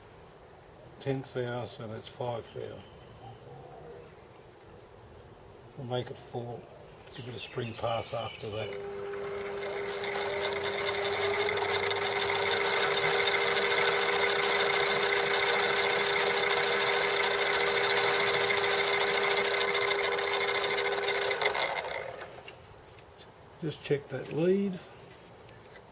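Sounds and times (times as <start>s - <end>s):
metal lathe motor whining: 8.5s - 22.4s.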